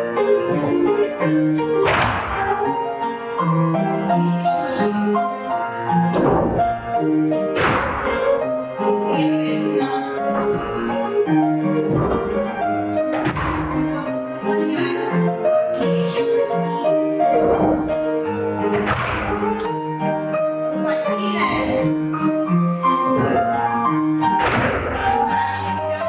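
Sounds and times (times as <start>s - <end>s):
piano melody: 0.0s - 26.0s
sharp knock: 1.8s - 2.8s, 7.5s - 8.4s, 11.9s - 12.5s, 13.1s - 14.1s, 18.6s - 19.7s, 24.4s - 25.1s.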